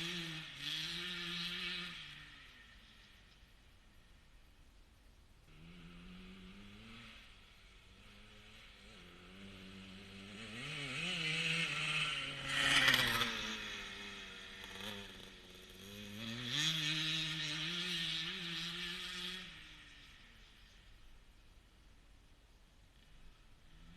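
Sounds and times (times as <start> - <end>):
two-stroke engine revving: 0.0 - 2.8, 5.5 - 20.3.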